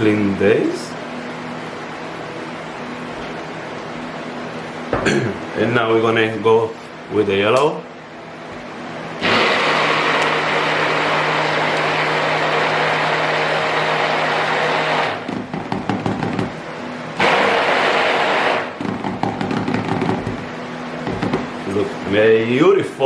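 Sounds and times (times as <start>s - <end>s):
stick blender running: 9.2s - 16.6s, 17.2s - 21.8s.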